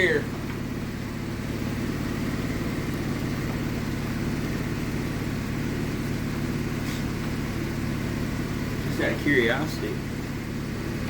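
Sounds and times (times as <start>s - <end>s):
motor droning: 0.0s - 11.0s.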